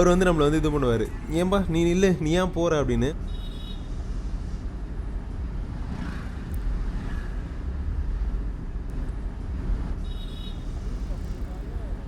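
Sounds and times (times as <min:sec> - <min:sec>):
city traffic: 0:00.0 - 0:12.0
motorcycle engine rumble: 0:10.4 - 0:12.0.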